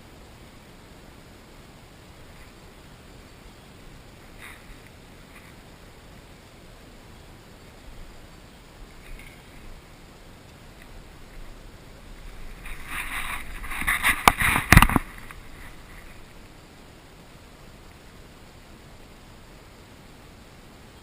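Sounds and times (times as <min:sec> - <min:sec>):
rustling: 0:03.9 - 0:06.3, 0:07.8 - 0:16.7.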